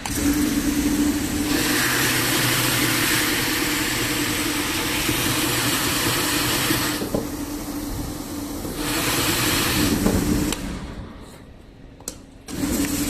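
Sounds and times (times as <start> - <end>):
loud hiss: 8.8 - 10.6.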